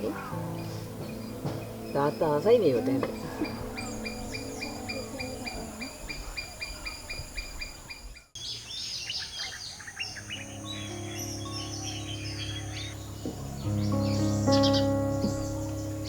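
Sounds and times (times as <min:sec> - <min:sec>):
soft background music: 0:00.0 - 0:06.2, 0:10.0 - 0:16.0
birds chirping: 0:00.0 - 0:16.0.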